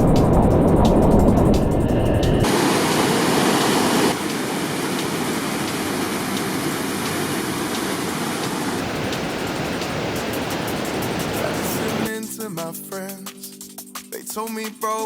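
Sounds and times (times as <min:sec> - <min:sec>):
river rapids rushing: 0:02.4 - 0:12.1.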